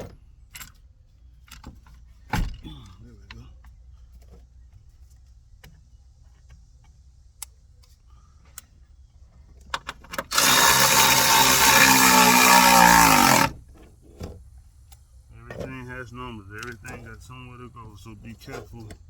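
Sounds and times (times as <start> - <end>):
handheld power tool running: 10.2 - 13.6.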